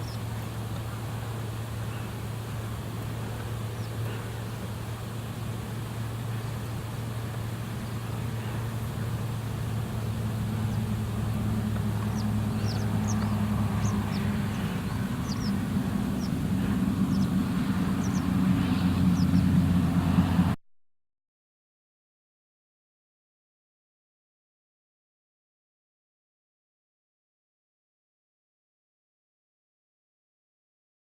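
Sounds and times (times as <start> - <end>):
small birds chirping: 0.0 - 19.7
vehicle engine humming: 0.0 - 20.6.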